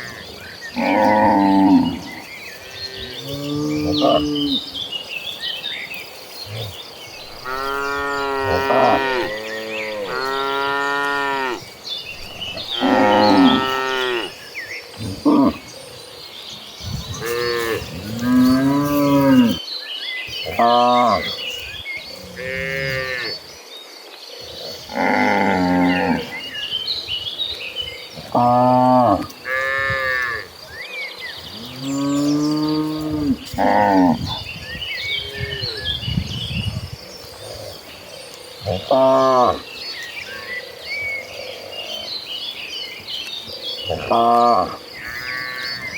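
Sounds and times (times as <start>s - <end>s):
birds chirping: 0.0s - 45.9s
cattle mooing: 6.6s - 11.6s, 12.3s - 14.4s.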